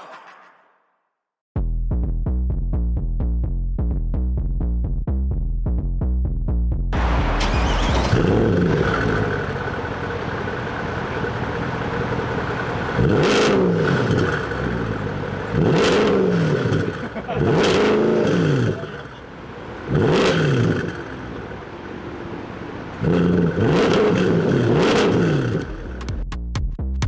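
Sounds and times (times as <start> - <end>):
sports car engine revving: 7.0 - 26.2
electronic music with bass beat: 26.0 - 27.0.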